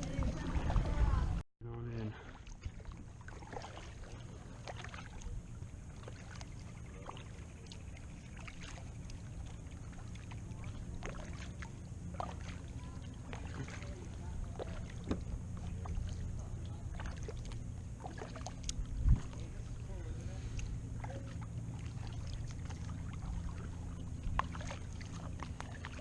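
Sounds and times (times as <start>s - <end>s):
low steady rumble: 0.0s - 26.0s
paddle splashes and drips: 0.0s - 26.0s
paddle knocks: 14.5s - 16.0s.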